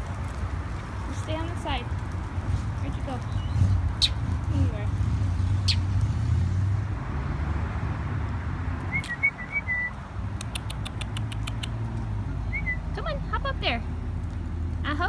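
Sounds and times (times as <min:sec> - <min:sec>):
small bird chirping: 0:03.3 - 0:04.3, 0:05.4 - 0:05.9, 0:08.9 - 0:13.0
sharp clicks: 0:08.9 - 0:09.4, 0:10.3 - 0:12.1.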